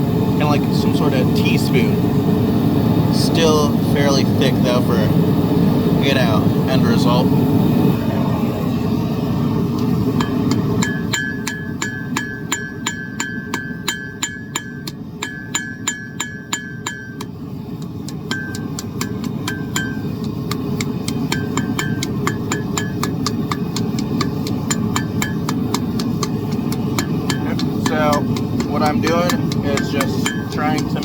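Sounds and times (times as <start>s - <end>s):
forge burner roaring: 0.0s - 31.0s
hammer striking steel on anvil: 10.1s - 31.0s.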